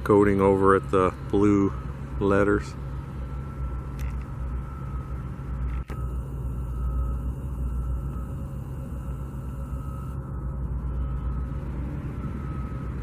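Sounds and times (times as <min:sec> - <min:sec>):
faint high whine: 0:00.0 - 0:13.0
low machinery rumble: 0:00.0 - 0:13.0.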